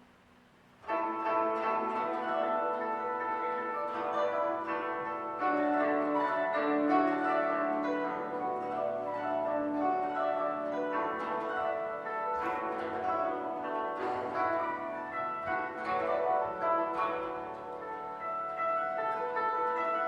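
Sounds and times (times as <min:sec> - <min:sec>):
kotos playing plucked notes: 0:00.8 - 0:20.0
low held koto note: 0:00.9 - 0:20.0.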